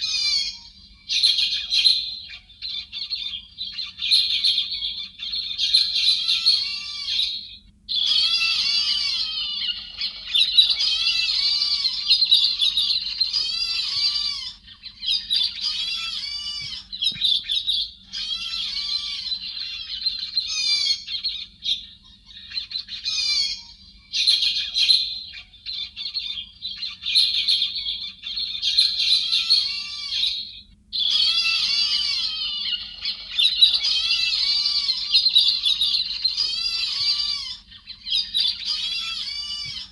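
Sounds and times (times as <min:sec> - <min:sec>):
flock of birds chattering calls: 0:00.0 - 0:39.9.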